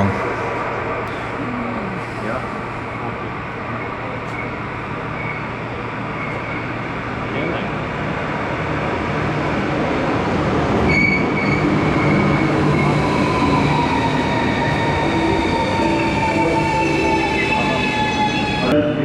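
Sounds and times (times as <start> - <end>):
train rumbling on rails: 0.0 - 19.0
high squealing: 10.9 - 18.7.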